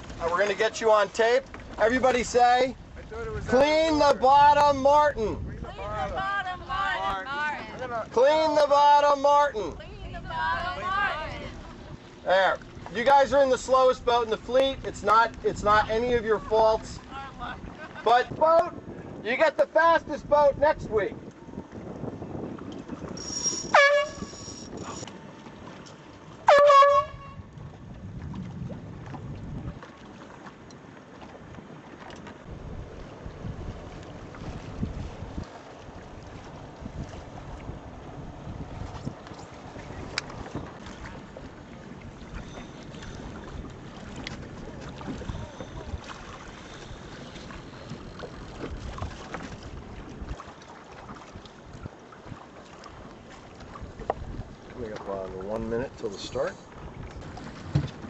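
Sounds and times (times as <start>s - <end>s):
wind buffeting microphone: 1.5s - 8.2s, 9.6s - 25.1s, 26.9s - 30.1s, 31.4s - 52.4s, 53.0s - 58.0s
air horn blasts: 23.2s - 24.4s, 26.5s - 27.4s.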